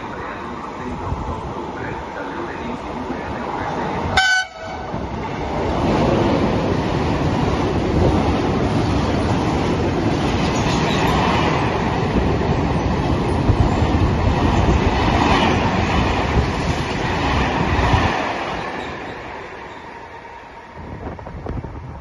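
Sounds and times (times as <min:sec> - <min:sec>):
train wheels clattering over rails: 0:05.0 - 0:19.9.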